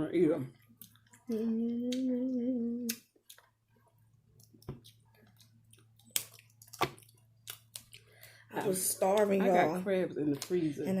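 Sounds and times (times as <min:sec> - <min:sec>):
person humming: 0:01.3 - 0:03.0.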